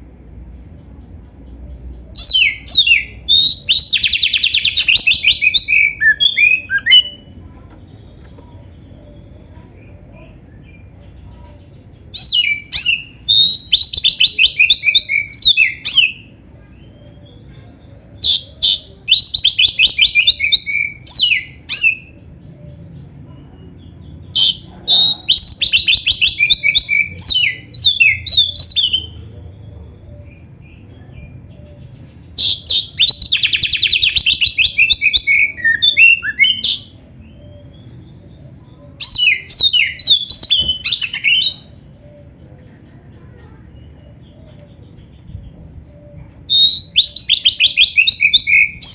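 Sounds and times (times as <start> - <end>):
bird singing trills and whistles: 0.7 - 7.4, 12.0 - 17.5, 18.2 - 29.2, 30.0 - 48.9.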